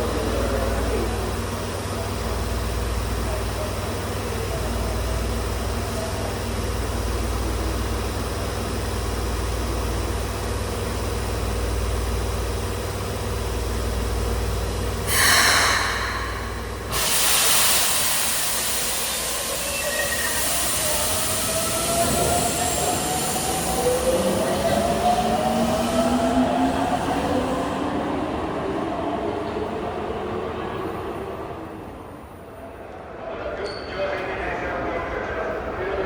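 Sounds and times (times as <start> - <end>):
electric train hum: 0.0 - 36.0
loud hiss: 15.1 - 19.6
train rushing noise: 15.1 - 33.6.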